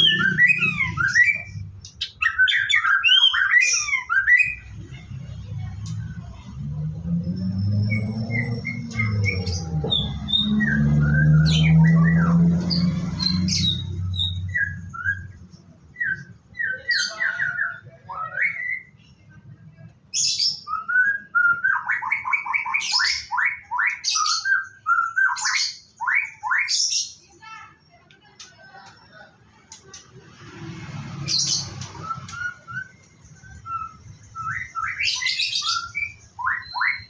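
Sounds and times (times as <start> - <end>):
bird singing whistled notes: 0.0 - 4.8, 7.0 - 19.0, 20.2 - 27.0, 31.3 - 37.0.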